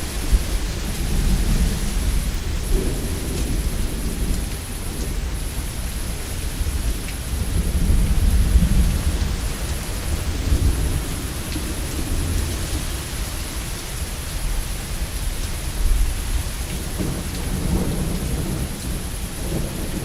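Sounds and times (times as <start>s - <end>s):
thunder rumbling: 0.0s - 13.8s, 15.7s - 20.0s
heavy rain: 0.0s - 20.0s.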